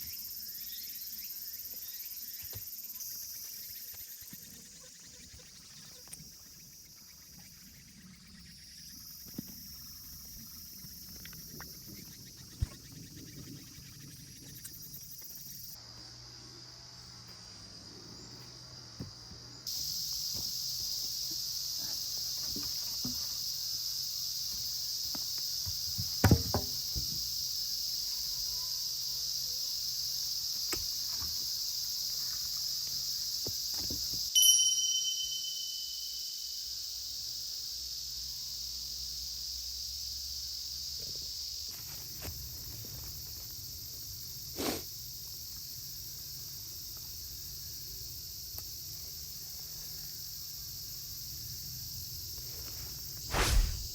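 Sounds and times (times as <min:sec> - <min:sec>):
insects buzzing: 0:00.0 - 0:53.9
sharp knocks: 0:26.0 - 0:27.2
metallic ding: 0:34.4 - 0:36.4.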